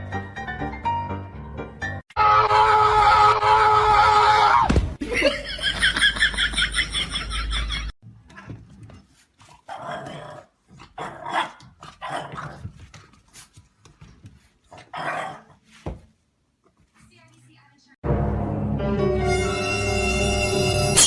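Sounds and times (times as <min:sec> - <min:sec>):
dog growling and barking: 0:09.5 - 0:12.7, 0:14.7 - 0:15.6.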